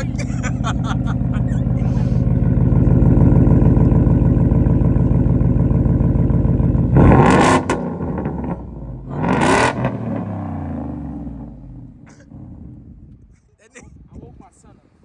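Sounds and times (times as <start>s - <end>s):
pickup truck exhaust revving: 0.0s - 13.0s.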